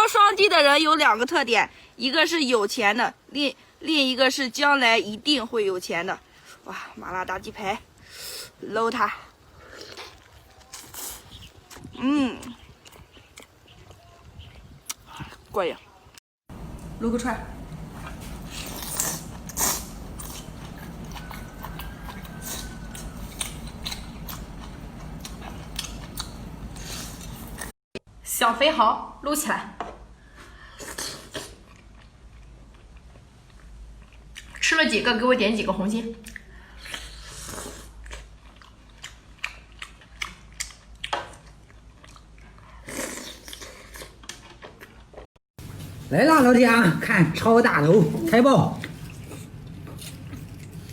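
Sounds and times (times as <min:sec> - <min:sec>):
chewing and biting food: 0:09.5 - 0:15.6, 0:18.0 - 0:27.7, 0:31.4 - 0:34.6, 0:36.2 - 0:46.0, 0:48.7 - 0:50.9
steady low hum: 0:16.5 - 0:27.7.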